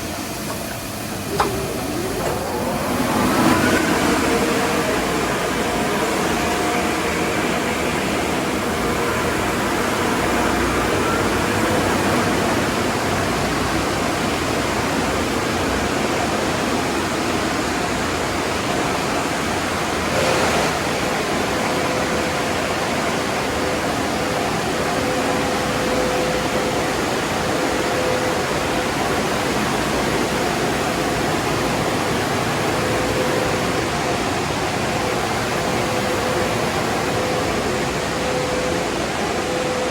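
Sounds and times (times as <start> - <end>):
water spray and blown air: 0.0 - 39.8.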